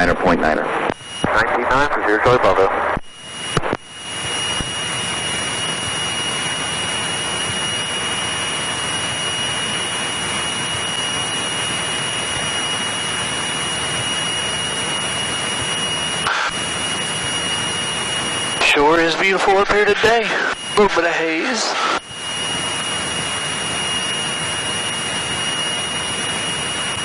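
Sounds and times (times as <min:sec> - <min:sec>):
propeller plane cabin noise: 0:00.0 - 0:27.0
thin high whine: 0:00.1 - 0:27.0.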